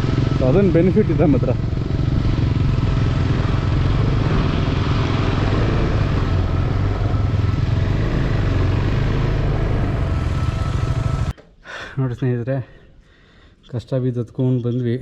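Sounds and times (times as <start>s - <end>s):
motorcycle engine under load: 0.0s - 11.4s.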